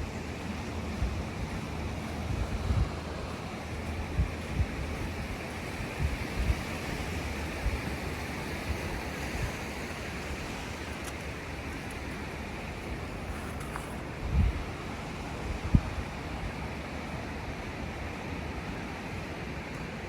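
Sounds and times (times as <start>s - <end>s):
wind on microphone: 0.0s - 16.9s
ocean surf washing: 0.0s - 20.0s.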